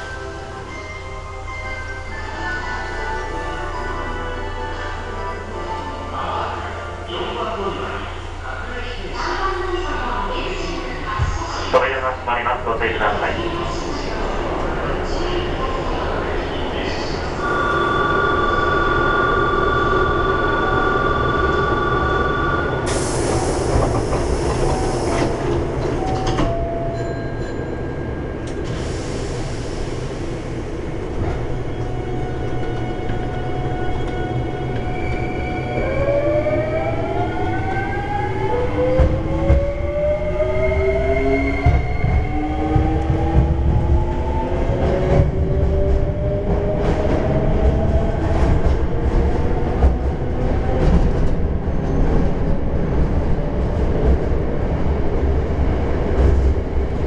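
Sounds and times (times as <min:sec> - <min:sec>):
train wheels rumbling: 0:20.2 - 0:57.0.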